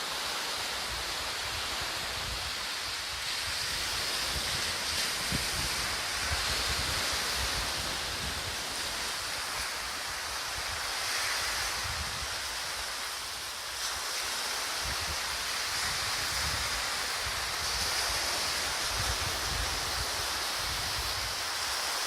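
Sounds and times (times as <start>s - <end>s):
surf washing onto beach: 0.0s - 22.0s
wind buffeting microphone: 1.6s - 9.2s.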